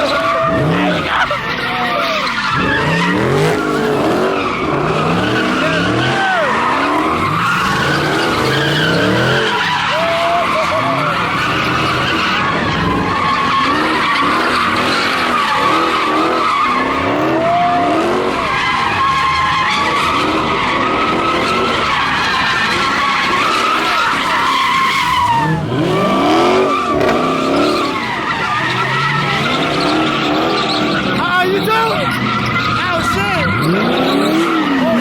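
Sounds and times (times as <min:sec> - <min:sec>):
car engine revving: 0:00.0 - 0:35.0
tyres screeching: 0:00.0 - 0:35.0.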